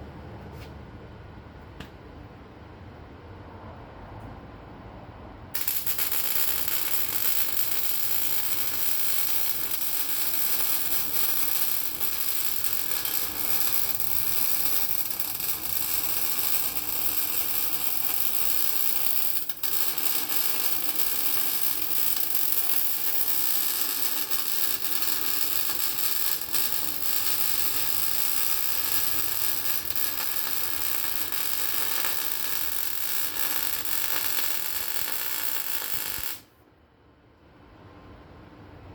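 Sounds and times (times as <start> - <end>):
welding arc crackling: 5.6 - 36.5.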